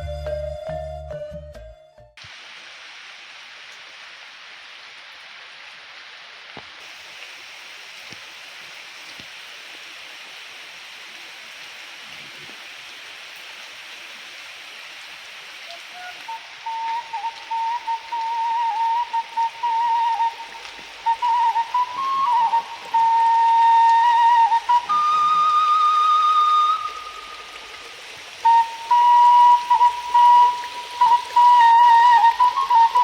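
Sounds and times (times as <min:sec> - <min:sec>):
whistle-like tone: 0:00.0 - 0:02.2, 0:15.7 - 0:27.6, 0:28.4 - 0:33.0
heavy rain hissing: 0:02.2 - 0:33.0.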